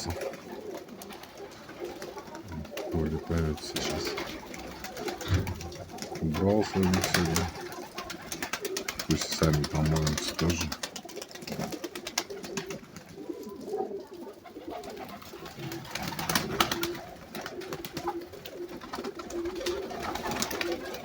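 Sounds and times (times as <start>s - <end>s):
clicks and taps of birds moving: 0.0s - 14.2s
pigeons cooing: 0.0s - 21.0s.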